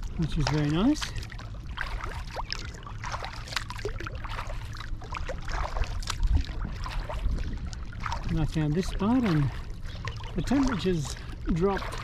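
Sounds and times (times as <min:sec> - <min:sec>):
paddle splashing water: 0:00.0 - 0:12.0
water dripping from paddle: 0:00.0 - 0:12.0.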